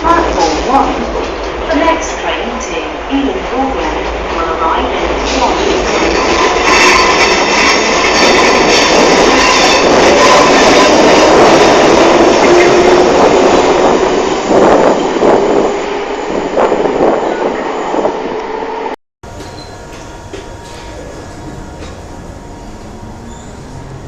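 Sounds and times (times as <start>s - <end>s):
train wheels rumbling on rails: 0.0s - 18.6s, 19.2s - 24.0s
thin wheel squeal: 23.2s - 23.8s.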